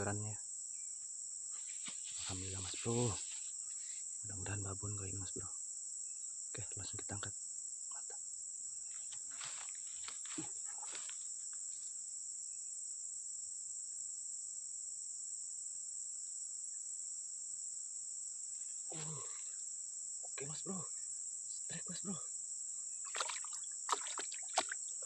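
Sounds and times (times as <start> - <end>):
insects chirping: 0.0 - 25.0
faint handling sounds: 1.6 - 4.1.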